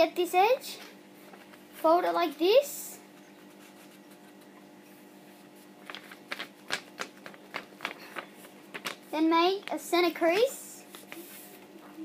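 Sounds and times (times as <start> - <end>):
paper rustling and crinkling: 5.4 - 9.1, 10.3 - 12.0.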